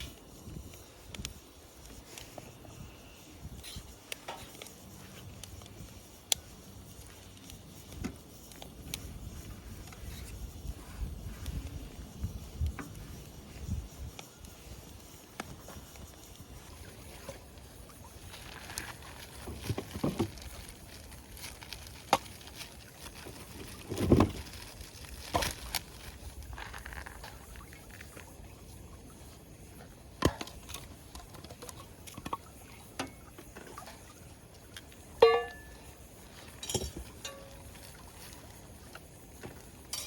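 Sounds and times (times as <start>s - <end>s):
ringing metal clink: 35.2s - 35.8s, 36.6s - 37.6s.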